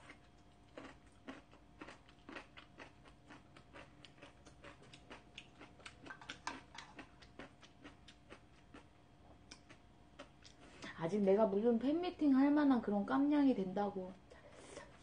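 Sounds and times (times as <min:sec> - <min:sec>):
wet mouth clicks chewing: 0:00.0 - 0:10.6.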